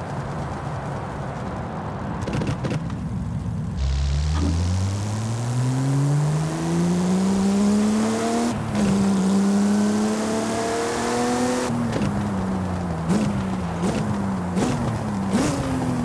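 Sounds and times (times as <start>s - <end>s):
car engine accelerating through gears: 3.8s - 12.1s.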